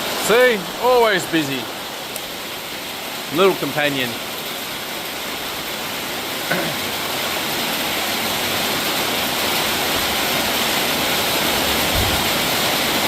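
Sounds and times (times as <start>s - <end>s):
heavy rain pouring: 0.0s - 13.0s
water streaming off roof: 0.0s - 13.0s.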